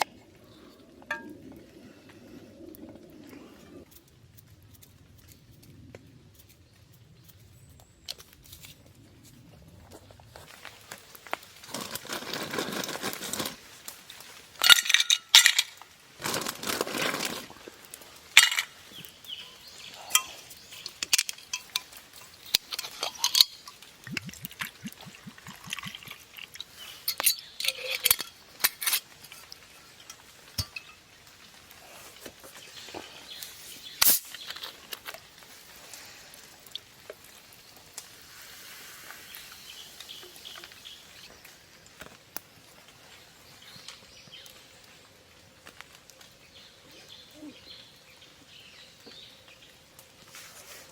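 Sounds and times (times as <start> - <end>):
rustling: 1.6 - 36.5
cookware and dishes clattering: 22.6 - 31.0.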